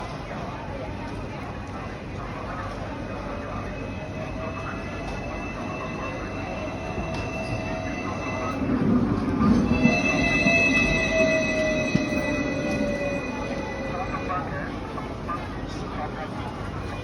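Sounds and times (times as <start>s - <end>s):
tram wheels squealing on rails: 2.6s - 15.0s.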